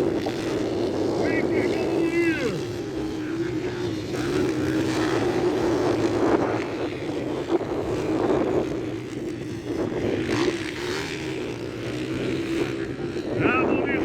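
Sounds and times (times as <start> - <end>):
motocross motorcycle engines racing: 0.0 - 14.0.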